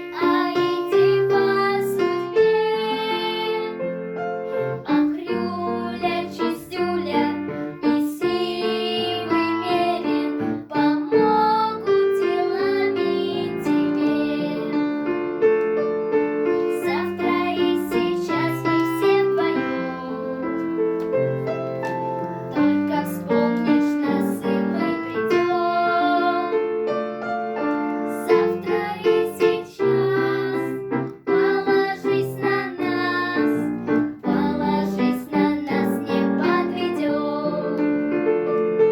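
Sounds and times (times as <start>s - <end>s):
pop children's song with piano: 0.0s - 38.9s.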